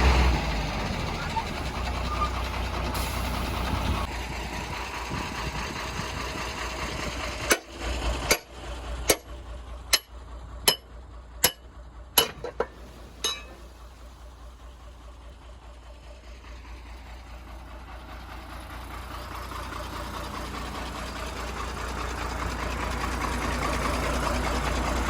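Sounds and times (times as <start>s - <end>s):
diesel engine running: 0.0s - 25.0s
sharp metallic knocks: 7.4s - 13.7s.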